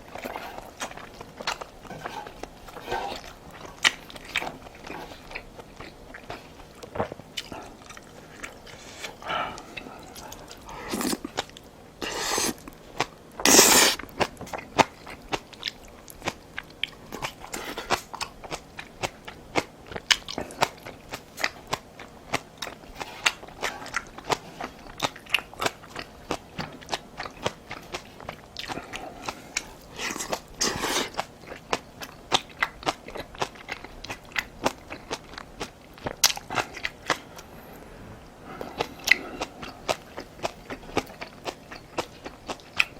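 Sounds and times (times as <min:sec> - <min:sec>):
chewing and crunchy bites: 0:00.0 - 0:37.6, 0:38.6 - 0:42.9.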